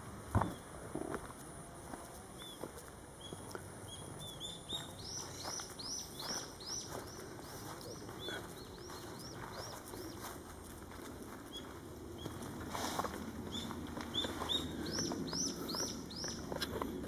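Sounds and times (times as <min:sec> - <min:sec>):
small bird chirping rapidly: 0:03.2 - 0:10.3, 0:13.5 - 0:16.7.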